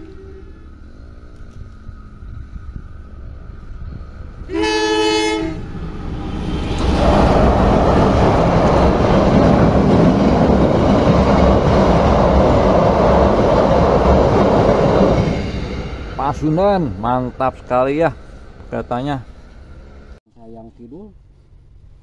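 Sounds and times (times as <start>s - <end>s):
train horn blast: 0.0s - 0.8s, 4.4s - 7.7s
train rumbling over steel bridge: 0.0s - 20.2s.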